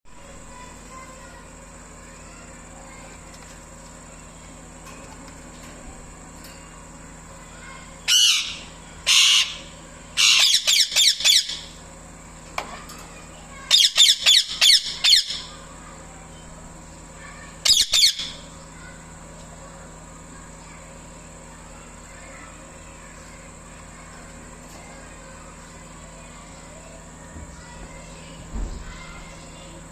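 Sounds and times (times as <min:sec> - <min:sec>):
parrot shrill calls: 0:08.1 - 0:11.7, 0:13.7 - 0:15.5, 0:17.6 - 0:18.4.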